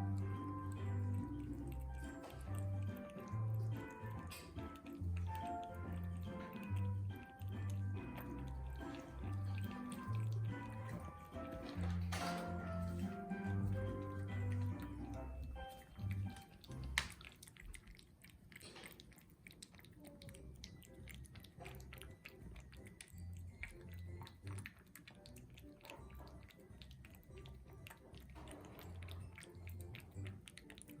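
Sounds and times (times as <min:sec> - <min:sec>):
soft background music: 0:00.0 - 0:17.7, 0:19.5 - 0:31.0
cat chewing and licking: 0:00.0 - 0:31.0.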